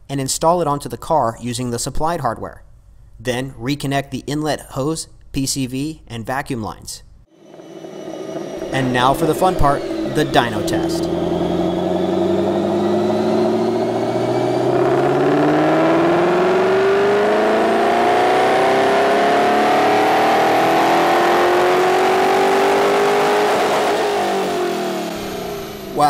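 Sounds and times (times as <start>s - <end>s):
car engine revving at full throttle: 7.3s - 26.0s.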